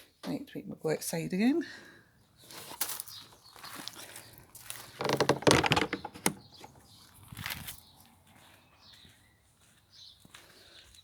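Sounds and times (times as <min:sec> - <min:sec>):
door rattling scrape: 0:04.9 - 0:06.8
door clicks and knocks: 0:05.0 - 0:06.8.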